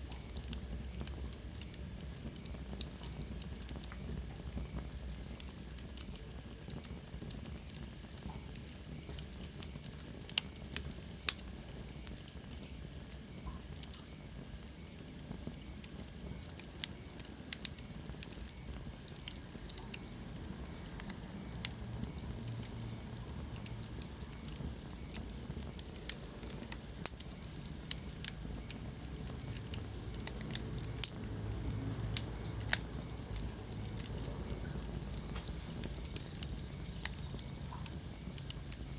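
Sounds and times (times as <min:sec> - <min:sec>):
wood fire crackling and popping: 0:00.0 - 0:38.9
low steady rumble: 0:19.0 - 0:38.9.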